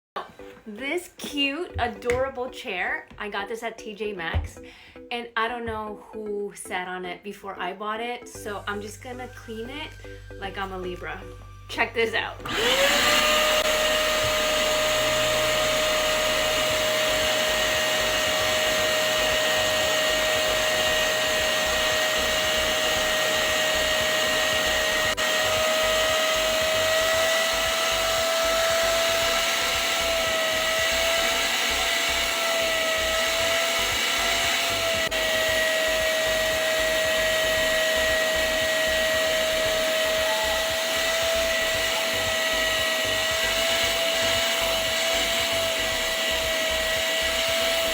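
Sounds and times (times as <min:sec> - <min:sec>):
vacuum cleaner motor whine: 0:12.4 - 0:47.9.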